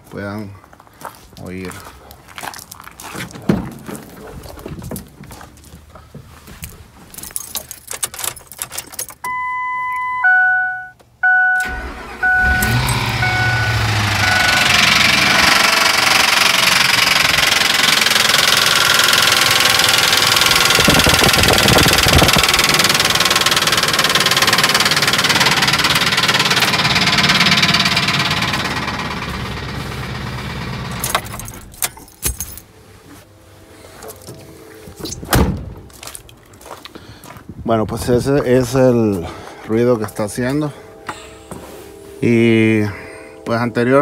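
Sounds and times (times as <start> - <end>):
car engine running with abnormal noise: 11.6 - 31.8.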